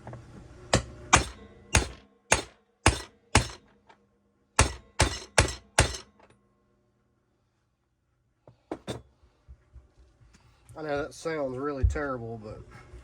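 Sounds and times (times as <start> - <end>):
sharp ringing hammer blows on metal: 0.7 - 3.7, 4.6 - 6.2.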